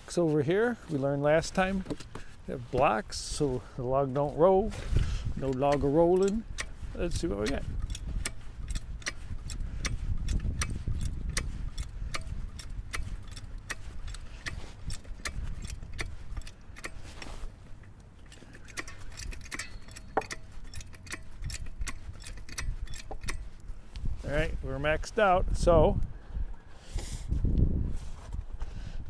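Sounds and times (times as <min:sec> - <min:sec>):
jack handle metallic clicks: 0:01.4 - 0:24.5.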